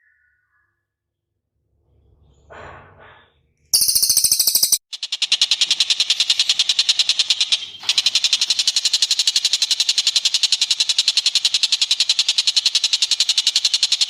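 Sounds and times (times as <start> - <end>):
bird trilling: 3.8 - 14.0.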